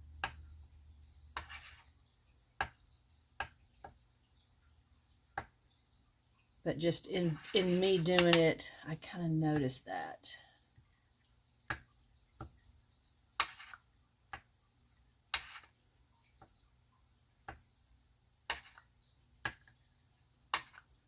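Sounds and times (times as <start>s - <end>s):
marker scratching across paper: 1.4s - 2.0s, 7.2s - 8.4s, 13.4s - 13.9s, 15.3s - 15.8s, 18.5s - 18.9s, 20.5s - 20.9s.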